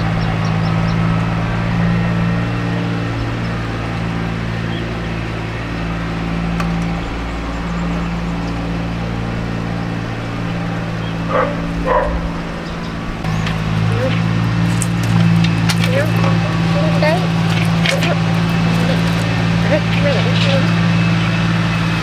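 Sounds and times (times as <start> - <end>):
engine droning: 0.0 - 22.0
dog barking: 11.2 - 12.6, 13.8 - 14.6.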